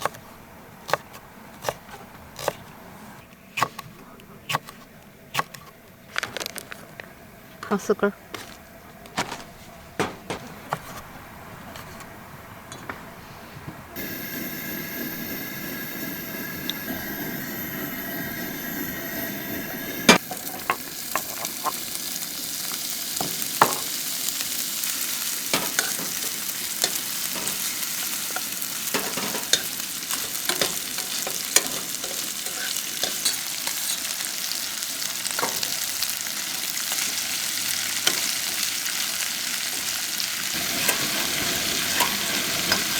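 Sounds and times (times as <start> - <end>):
food sizzling in a pan: 14.0 - 42.9
cooking utensil clicks and scrapes: 20.1 - 21.9, 25.5 - 34.3, 40.7 - 42.9.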